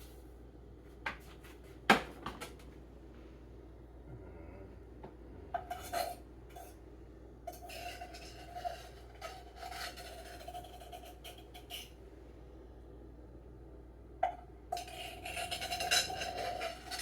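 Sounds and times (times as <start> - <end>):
utensil scraping dishes: 5.5 - 6.8, 7.5 - 12.0, 14.2 - 17.0.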